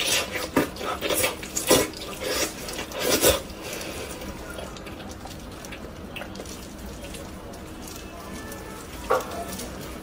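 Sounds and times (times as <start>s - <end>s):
wet chewing and sucking: 0.0s - 7.6s.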